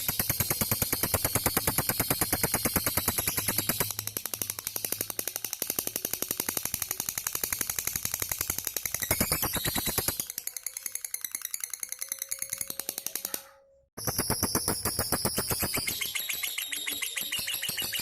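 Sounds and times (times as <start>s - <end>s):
lovebird chattering: 14.0s - 18.0s.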